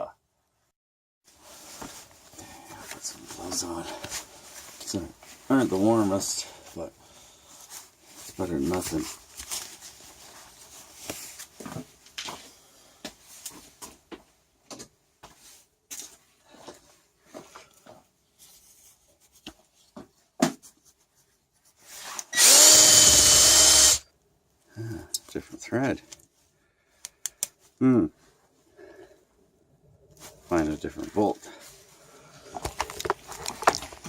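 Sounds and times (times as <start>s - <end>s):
electric drill whining: 22.3s - 24.1s.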